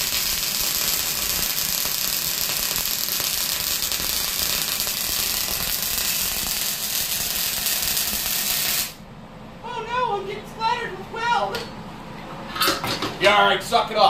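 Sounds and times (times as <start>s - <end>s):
welder arc crackling and sizzling: 0.0s - 9.0s.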